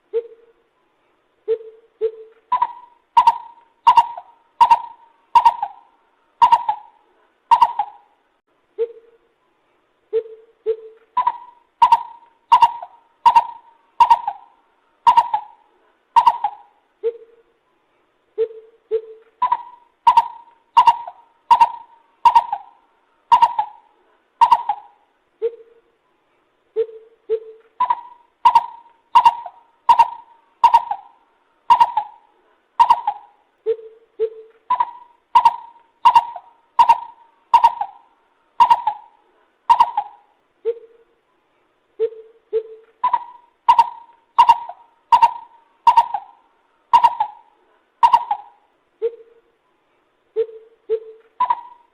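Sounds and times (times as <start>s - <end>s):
coucal calling hollow notes: 1.5s - 8.2s, 10.1s - 17.4s, 18.4s - 25.7s, 26.8s - 41.0s, 50.4s - 51.9s.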